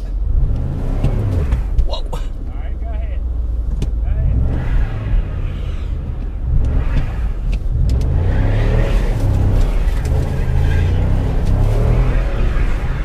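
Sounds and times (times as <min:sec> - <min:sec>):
car engine revving: 0:00.0 - 0:13.0
wheels spinning in snow: 0:04.6 - 0:13.0.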